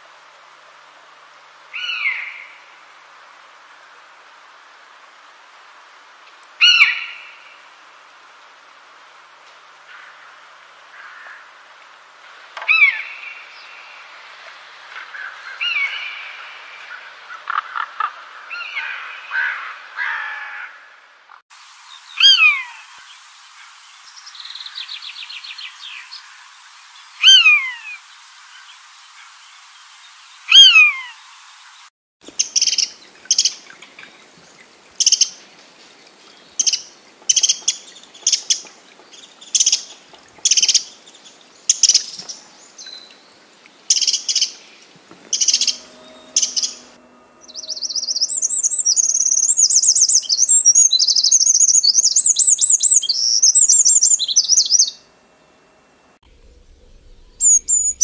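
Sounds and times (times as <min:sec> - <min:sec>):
downward sliding whistled bird calls: 0:21.9 - 0:31.9, 0:45.3 - 0:55.1, 0:56.5 - 0:58.0
fast high twittering birdsong: 0:21.9 - 0:35.4, 0:40.5 - 0:55.1, 0:56.4 - 0:58.0.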